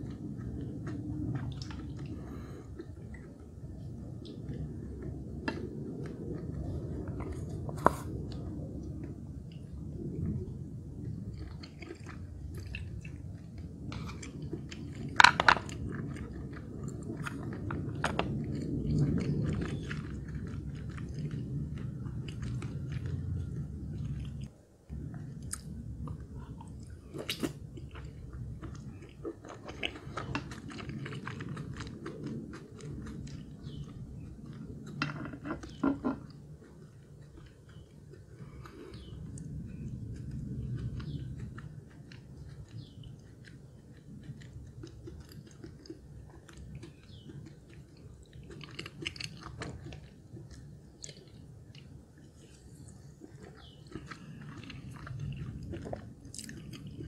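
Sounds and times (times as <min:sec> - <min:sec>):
wet chewing: 0:00.0 - 0:57.0.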